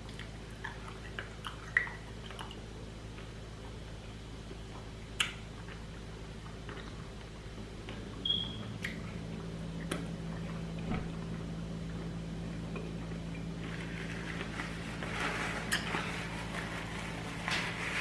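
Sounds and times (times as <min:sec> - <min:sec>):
chewing: 0:00.0 - 0:03.8, 0:04.6 - 0:07.3
steady low hum: 0:00.0 - 0:18.0.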